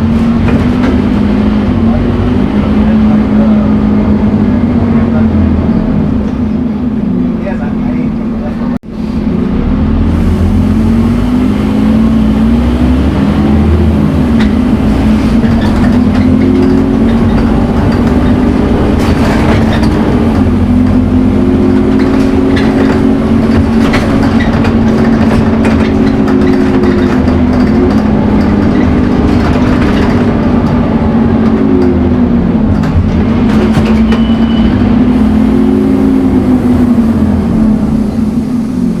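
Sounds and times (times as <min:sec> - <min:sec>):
bus engine accelerating: 0:00.0 - 0:39.0
clicks and knocks: 0:14.3 - 0:20.5, 0:21.6 - 0:30.8.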